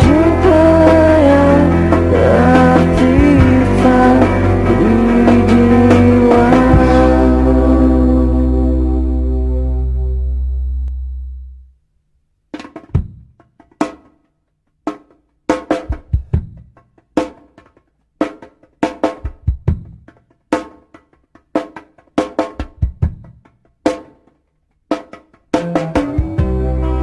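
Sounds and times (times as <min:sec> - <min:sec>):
full band playing: 0:00.0 - 0:08.1
drum kit playing: 0:00.0 - 0:08.6, 0:12.5 - 0:14.2, 0:14.8 - 0:27.0.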